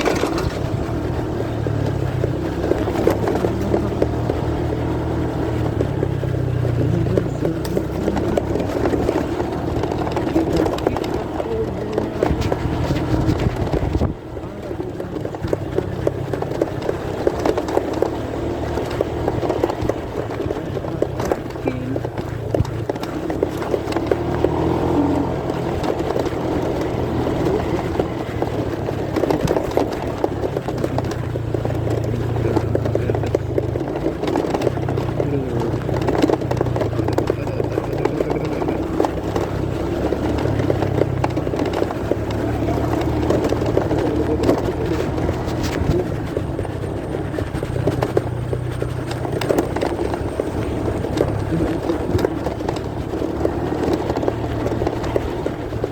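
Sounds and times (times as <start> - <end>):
muffled motorcycle engine: 0.0 - 55.9
road rumble: 0.0 - 55.9.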